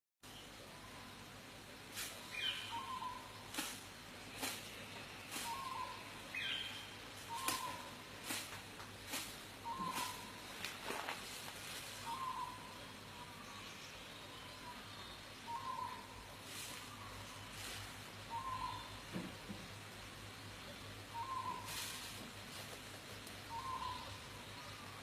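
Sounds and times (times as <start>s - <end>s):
birds calling: 1.9s - 25.0s.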